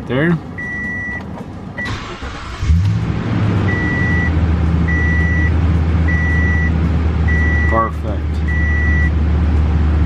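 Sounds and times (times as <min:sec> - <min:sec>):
dashboard warning chime beeping: 0:00.6 - 0:02.1, 0:03.6 - 0:09.2
engine cranking and idling: 0:00.6 - 0:10.0.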